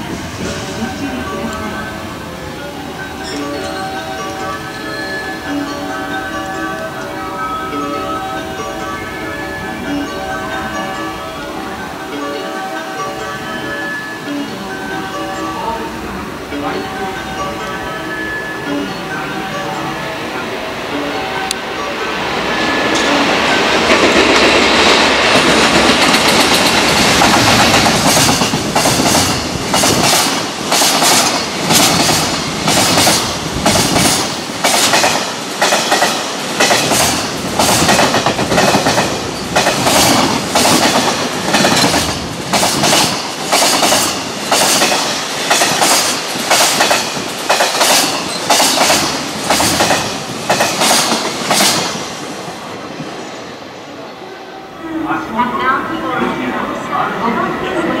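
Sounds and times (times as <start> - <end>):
electric locomotive passing: 0.0 - 58.0
wheels clacking over rail joints: 22.9 - 52.3.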